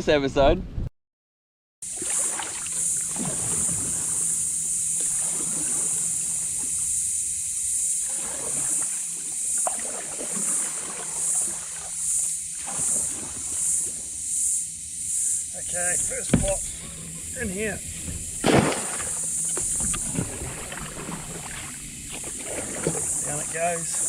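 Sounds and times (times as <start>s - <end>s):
boat motor running low: 1.9s - 24.0s
high-pitched buzz: 1.9s - 24.0s
knocks: 16.2s - 16.6s.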